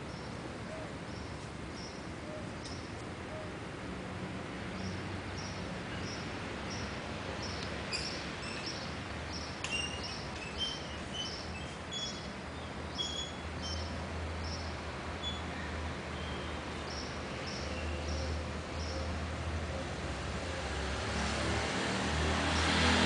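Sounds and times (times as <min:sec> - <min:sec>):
small birds chirping: 0:04.8 - 0:15.5.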